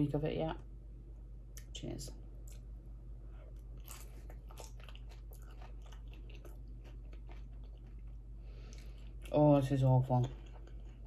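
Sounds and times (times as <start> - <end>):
person chewing food: 2.4 - 11.0.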